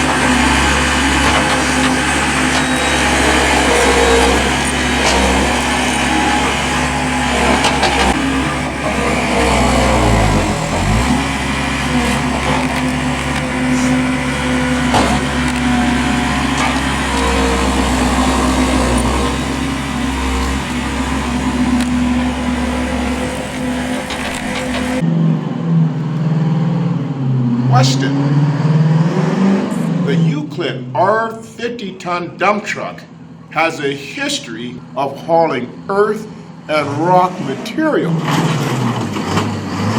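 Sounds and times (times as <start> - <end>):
heavy machine engine running: 0.0 - 25.6.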